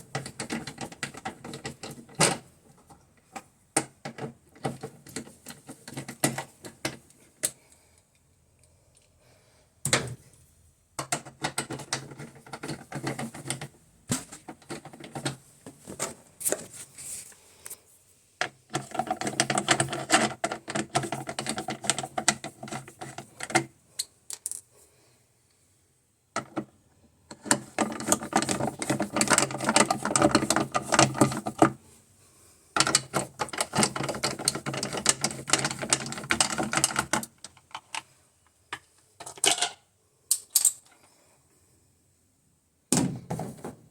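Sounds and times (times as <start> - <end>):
rapid clicking and rattling: 32.8 - 38.0.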